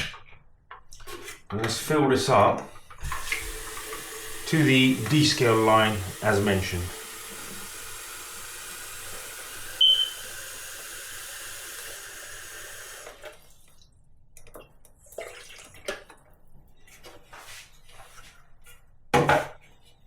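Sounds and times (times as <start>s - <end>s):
tap water filling tank: 2.4s - 16.3s.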